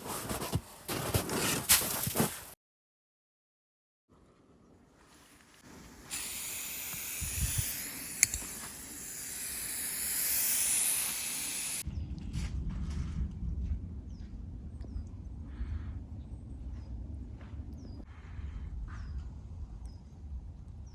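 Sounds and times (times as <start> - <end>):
steady hiss: 5.6 - 11.8
sharp click: 6.1 - 11.8.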